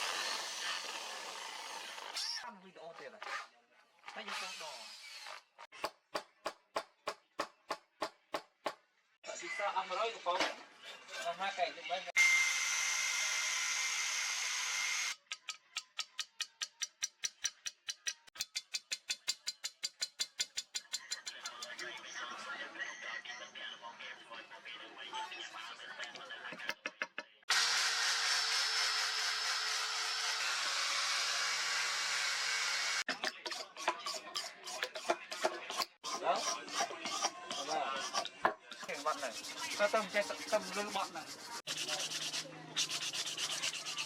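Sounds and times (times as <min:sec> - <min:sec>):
electric power tool running: 0:00.0 - 0:02.2, 0:27.5 - 0:33.0
hand filing on steel: 0:33.2 - 0:44.0.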